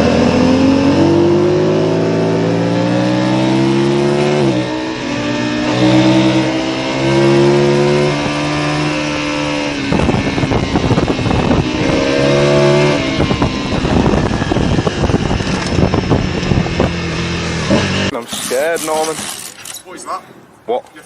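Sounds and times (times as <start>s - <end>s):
motorcycle engine running: 8.2s - 18.1s.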